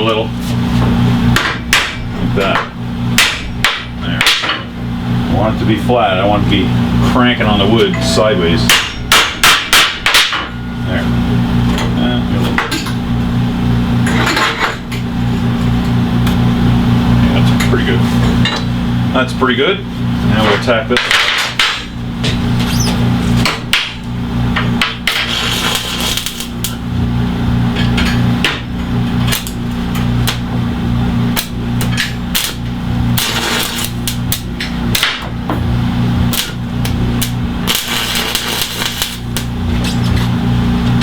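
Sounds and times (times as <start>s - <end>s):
electrical hum: 0.0s - 41.0s
hammer strikes on steel: 1.4s - 4.6s, 8.0s - 10.6s
welding crackling hiss: 24.8s - 26.9s, 29.2s - 30.5s, 31.2s - 35.1s, 36.2s - 39.6s.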